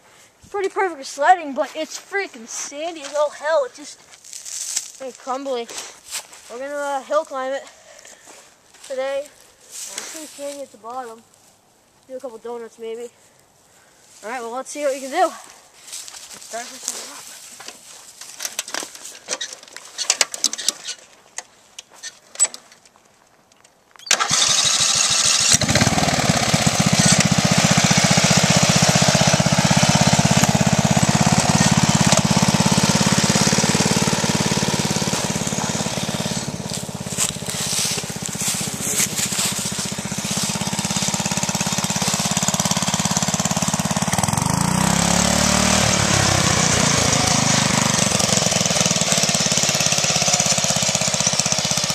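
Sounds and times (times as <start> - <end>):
riding mower engine starting: 18.4 - 21.1, 24.0 - 51.9.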